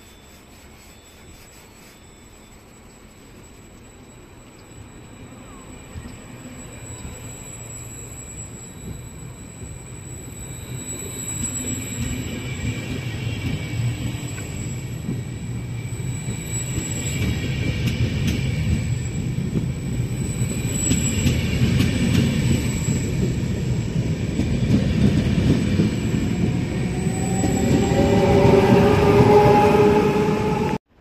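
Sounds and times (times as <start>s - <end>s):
steady high whine: 0.0s - 31.0s
train wheels rumbling on track: 2.4s - 31.0s.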